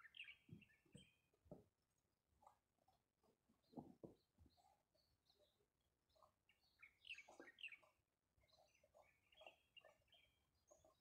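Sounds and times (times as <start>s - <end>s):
faint bird chirps: 4.4s - 11.0s.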